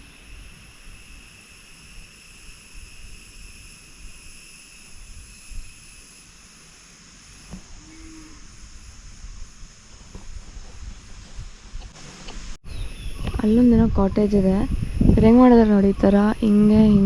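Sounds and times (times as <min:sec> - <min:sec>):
insects trilling: 0:00.0 - 0:10.8, 0:12.7 - 0:17.0
low rumble on microphone: 0:07.6 - 0:17.0.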